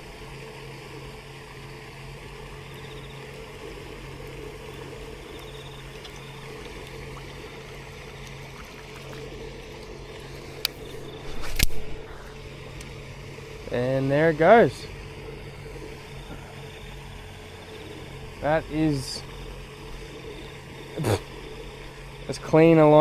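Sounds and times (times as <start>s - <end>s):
running water with low hum: 0.0s - 23.0s
fishing rod cast swish: 10.7s - 12.0s.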